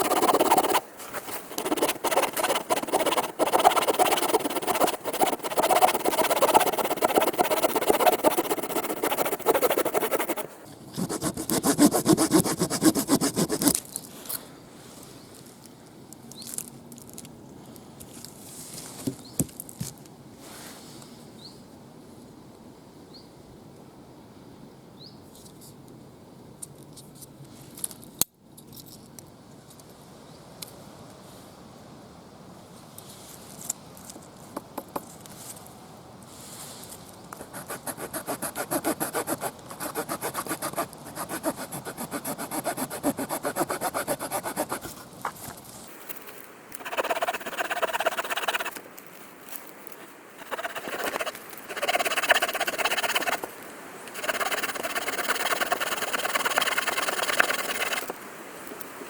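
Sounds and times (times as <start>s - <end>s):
saw blade rasping through wood: 0.0s - 0.8s, 1.5s - 13.7s, 37.5s - 44.9s, 46.8s - 48.7s, 50.4s - 53.4s, 54.1s - 58.1s.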